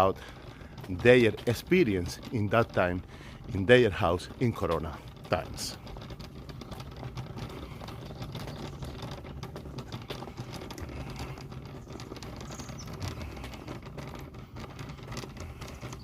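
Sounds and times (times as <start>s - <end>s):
high bird chirp: 12.5s - 13.0s.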